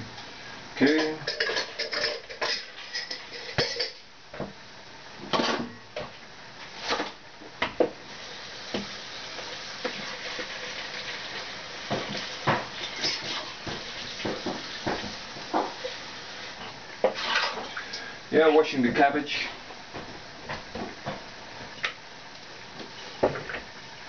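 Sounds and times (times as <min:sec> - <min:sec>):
dishes and pans clinking: 0:00.8 - 0:04.1, 0:05.3 - 0:05.8, 0:11.9 - 0:15.9
steady hiss: 0:06.2 - 0:24.0.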